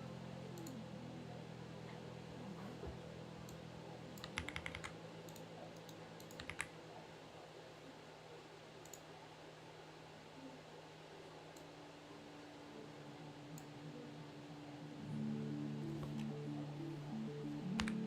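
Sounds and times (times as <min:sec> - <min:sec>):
mechanical keyboard keystrokes: 0:04.2 - 0:04.9, 0:06.2 - 0:06.7, 0:17.8 - 0:18.0.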